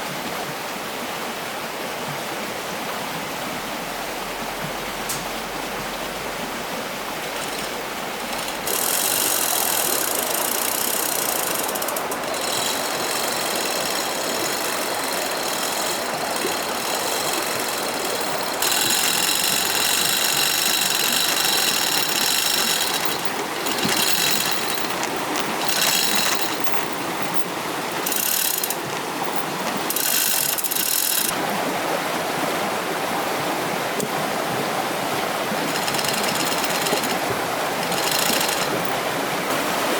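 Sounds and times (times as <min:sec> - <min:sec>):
stream water flowing: 0:00.0 - 0:39.9
power tool whining: 0:07.3 - 0:31.4, 0:35.6 - 0:39.1.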